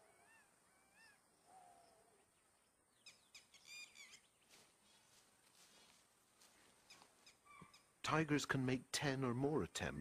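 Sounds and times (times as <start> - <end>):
faint bird calls: 0.0 - 5.3, 6.5 - 8.0.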